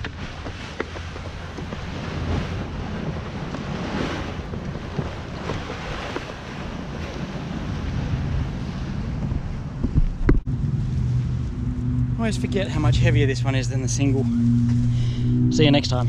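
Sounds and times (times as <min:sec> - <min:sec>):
water splashing in shallows: 0:00.0 - 0:09.1
wind buffeting microphone: 0:00.0 - 0:16.0.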